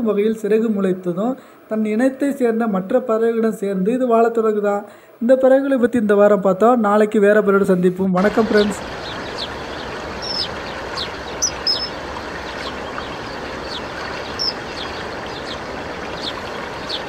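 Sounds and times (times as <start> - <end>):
running water: 8.2 - 17.0
small birds chirping: 8.2 - 17.0.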